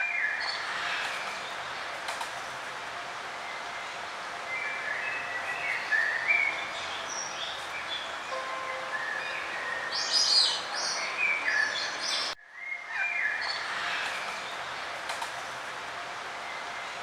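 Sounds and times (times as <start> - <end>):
steady background hiss: 0.0 - 17.0
songbirds chirping and singing: 3.4 - 15.0.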